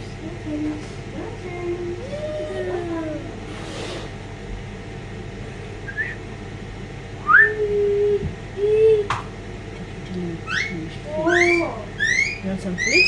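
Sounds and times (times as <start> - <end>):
parrots whistling: 5.8 - 6.2, 7.2 - 7.6, 10.4 - 13.0.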